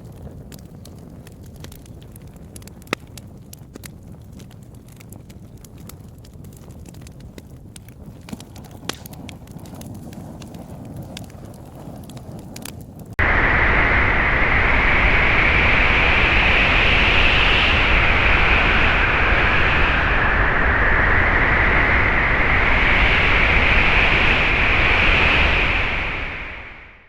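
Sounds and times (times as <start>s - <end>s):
loud steady rushing noise: 13.2s - 27.0s.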